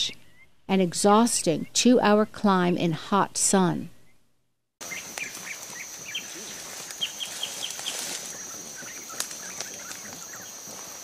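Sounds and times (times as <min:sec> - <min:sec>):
birds chirping: 0:00.0 - 0:01.9, 0:04.8 - 0:11.0.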